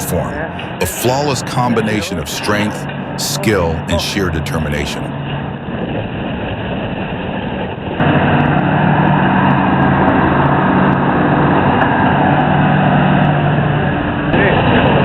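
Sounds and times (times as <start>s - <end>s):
heavy diesel engine running: 0.0s - 4.8s.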